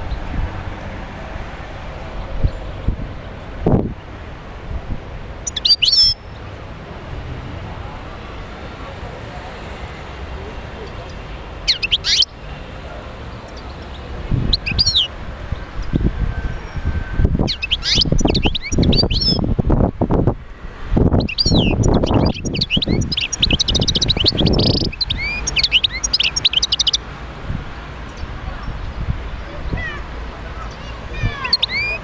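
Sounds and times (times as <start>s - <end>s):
finch twittering song: 5.4s - 6.5s, 10.9s - 12.4s, 13.4s - 16.1s, 17.4s - 19.5s, 21.1s - 27.0s, 30.6s - 32.0s.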